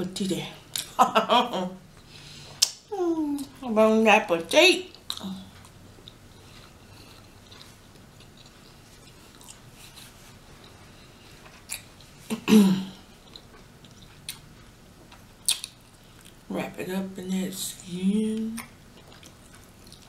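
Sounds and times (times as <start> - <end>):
person chewing: 2.0 - 2.8, 4.9 - 12.4, 13.0 - 16.5, 18.6 - 20.0.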